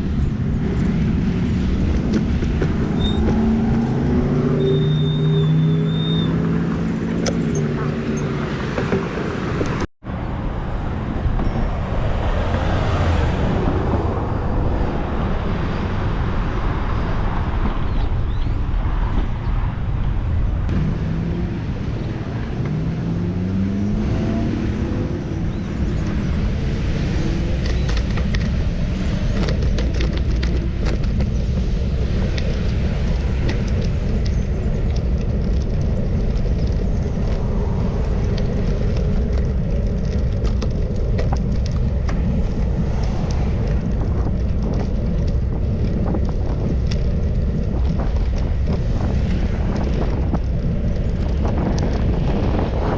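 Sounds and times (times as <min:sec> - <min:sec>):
vehicle engine rising in pitch: 0:00.0 - 0:09.9, 0:20.7 - 0:40.8
road traffic: 0:00.0 - 0:52.9
wind rumble on microphone: 0:00.0 - 0:52.9.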